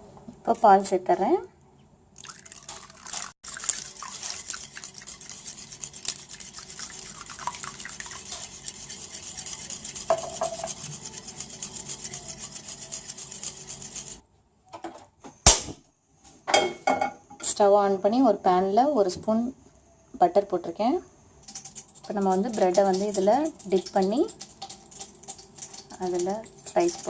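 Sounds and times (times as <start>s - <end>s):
utensil beating mixture in bowl: 2.3s - 14.2s, 21.4s - 27.0s
utensil clinking against bowl: 9.2s - 13.4s.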